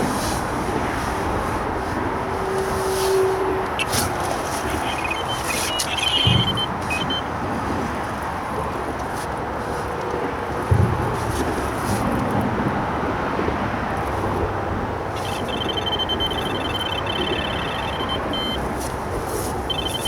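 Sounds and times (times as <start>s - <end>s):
road traffic: 0.0s - 20.0s
bite alarm beeping: 3.7s - 7.3s, 15.1s - 20.0s.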